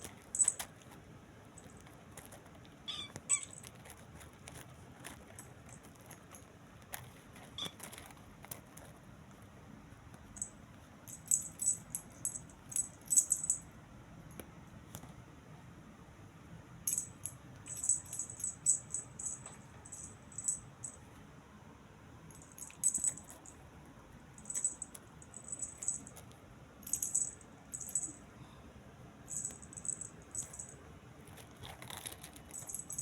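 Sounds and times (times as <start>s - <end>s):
metallic jingling and clicks: 0.0s - 1.0s, 11.1s - 13.6s, 16.9s - 21.0s, 22.3s - 23.6s, 24.4s - 28.2s, 29.3s - 30.8s, 31.4s - 33.0s.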